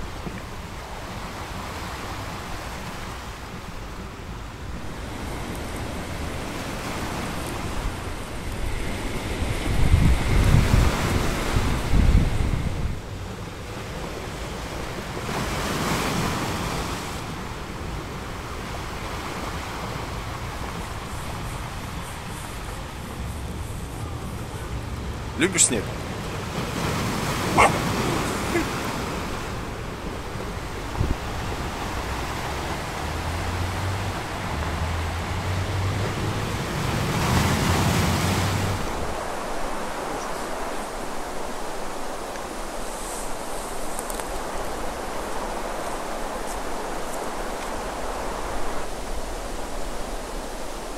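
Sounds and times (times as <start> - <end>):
wind noise on microphone: 0.0 - 25.4, 26.0 - 50.9
sea surf washing on shore: 0.0 - 50.9.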